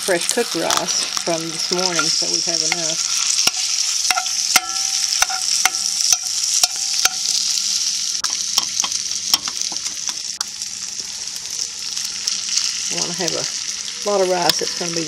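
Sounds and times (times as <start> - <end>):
rice sizzling in oil: 0.0 - 15.0
utensil tapping and scraping pan: 1.9 - 7.3.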